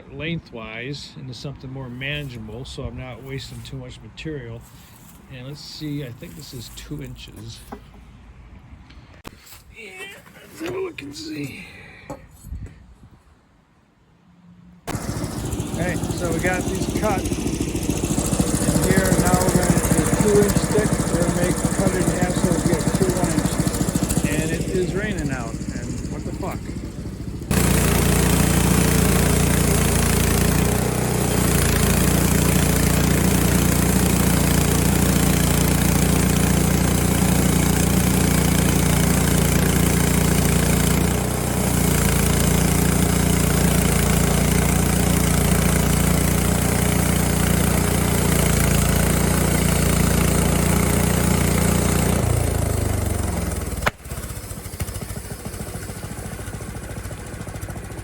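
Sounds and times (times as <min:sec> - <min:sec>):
band blade cutting wood: 0:14.9 - 0:45.6, 0:53.7 - 0:54.2
small gasoline engine running: 0:14.9 - 0:58.0.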